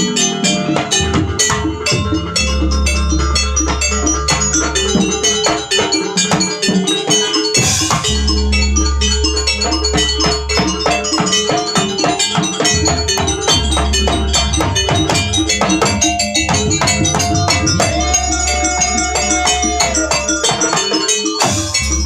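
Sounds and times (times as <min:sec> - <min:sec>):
gamelan music: 0:00.0 - 0:22.0.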